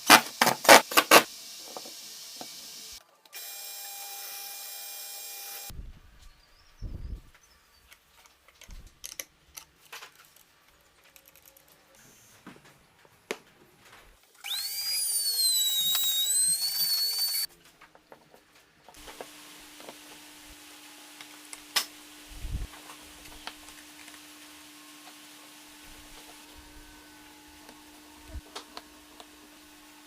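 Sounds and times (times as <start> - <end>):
power drill whine: 3.4 - 5.7, 14.4 - 17.5.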